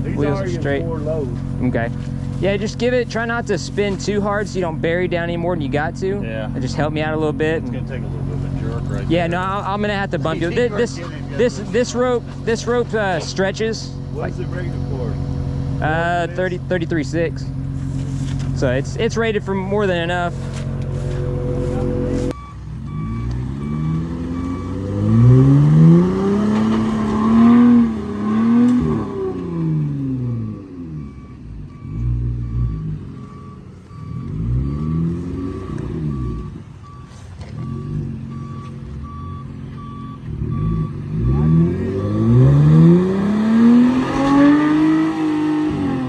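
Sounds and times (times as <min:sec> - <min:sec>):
truck engine revving: 0:00.0 - 0:46.0
repeating beep: 0:14.2 - 0:14.9, 0:21.2 - 0:25.9, 0:30.4 - 0:43.2.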